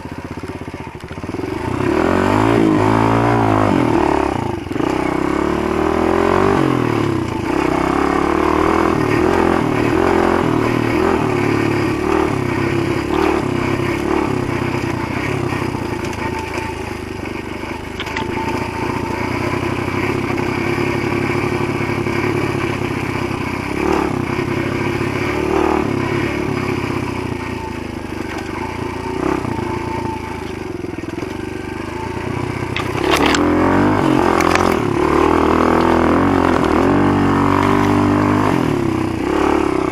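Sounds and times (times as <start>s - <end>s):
motorbike engine revving: 0.0s - 39.9s
bike clatter: 17.9s - 18.4s, 32.7s - 35.1s.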